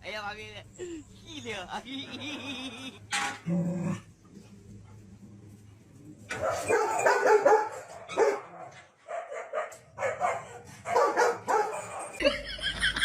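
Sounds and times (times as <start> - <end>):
dog barking: 6.3 - 12.2.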